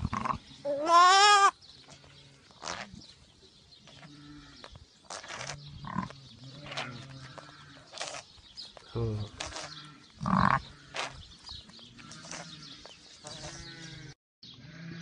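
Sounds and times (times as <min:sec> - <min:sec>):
lamb bleating: 0:00.0 - 0:02.9, 0:04.0 - 0:08.2, 0:12.0 - 0:15.0.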